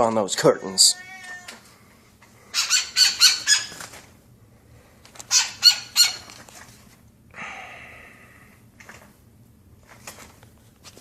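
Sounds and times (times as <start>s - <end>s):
woodpecker calling sharp notes: 2.6s - 3.8s
woodpecker rasping call: 2.6s - 3.8s.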